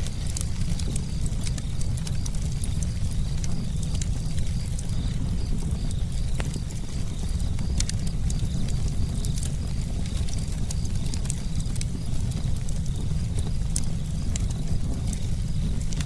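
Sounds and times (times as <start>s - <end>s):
low rumble of fire: 0.0s - 16.0s
wood crackling and popping: 0.0s - 16.0s.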